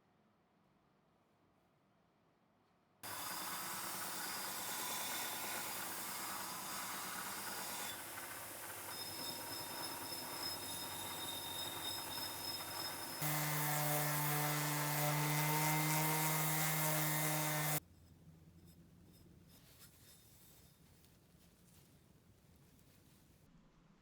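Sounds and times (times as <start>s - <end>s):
power tool hissing and rubbing: 3.0s - 17.8s
power tool steady hum: 3.0s - 17.8s.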